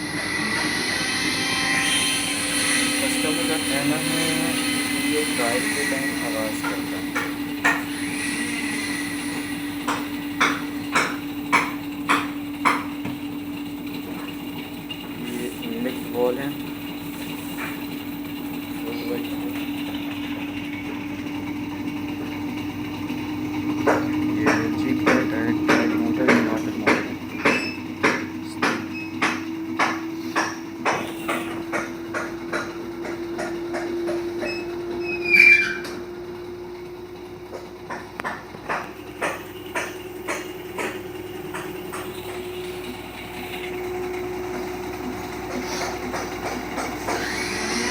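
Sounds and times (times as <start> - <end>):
high squeal: 0.0 - 10.4, 28.9 - 29.4, 34.4 - 36.1
washing machine humming: 0.0 - 47.9
sharp repeating knock: 9.9 - 12.9, 23.9 - 32.7.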